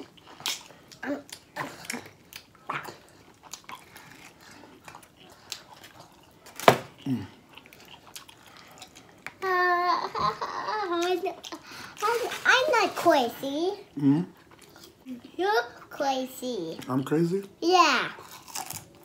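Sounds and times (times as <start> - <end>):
wet chewing and lip smacks: 0.0 - 9.4.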